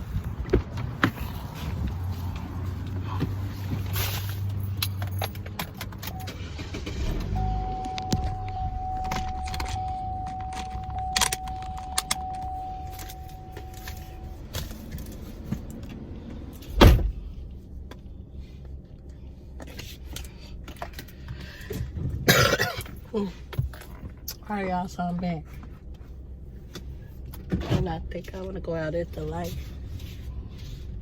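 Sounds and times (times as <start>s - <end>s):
keys jangling: 4.2s - 6.3s
car door shutting: 6.0s - 13.9s, 16.7s - 17.2s
steady electronic tone: 7.4s - 14.4s.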